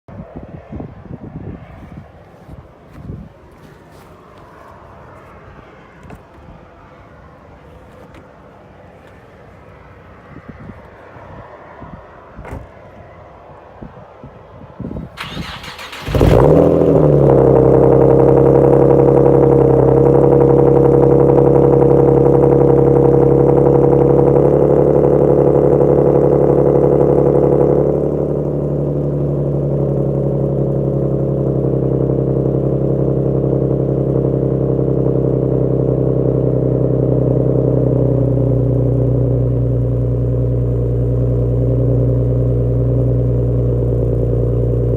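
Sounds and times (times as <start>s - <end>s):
car engine idling: 1.8s - 11.4s, 15.1s - 44.9s
starter cranking: 15.2s - 17.1s.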